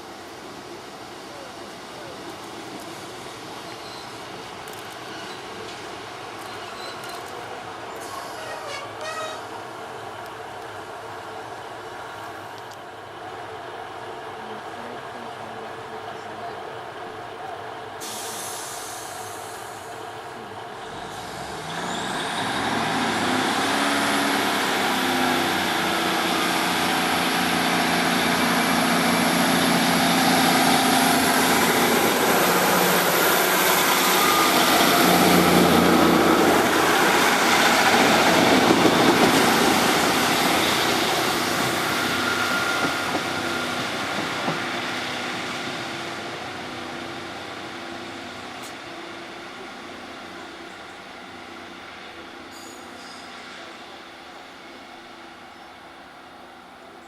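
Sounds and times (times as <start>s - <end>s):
diesel locomotive passing: 0.0s - 57.0s.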